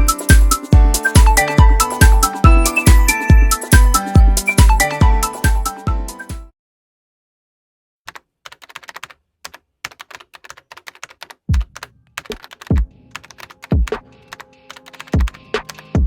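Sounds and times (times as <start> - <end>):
music beat with kick drum: 0.0 - 6.5, 11.5 - 11.8, 12.6 - 12.9, 13.6 - 14.1, 15.0 - 16.0
keyboard typing: 8.1 - 16.0.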